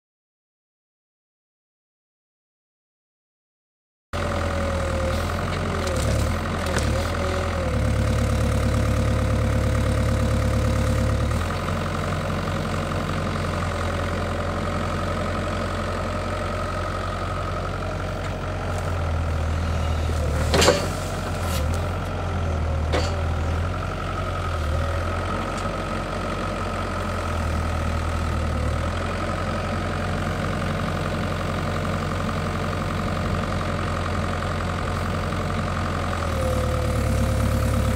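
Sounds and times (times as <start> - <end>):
excavator diesel engine running: 4.2 - 37.9
hydraulics working: 10.9 - 26.2.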